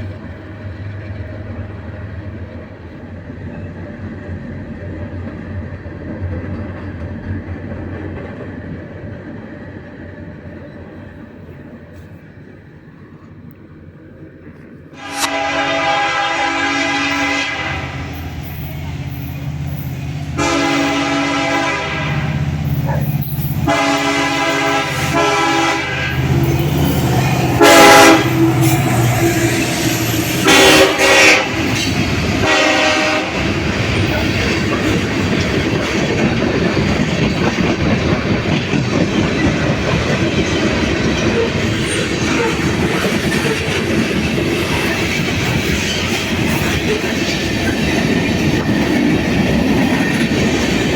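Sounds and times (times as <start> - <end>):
train cars rumbling past: 0.0 - 50.9
locomotive engine drone: 9.8 - 50.9
locomotive horn blasts: 15.0 - 18.2, 20.4 - 22.4, 23.6 - 29.7, 30.3 - 31.8, 32.4 - 33.5
wheels clacking over rail joints: 33.4 - 50.9.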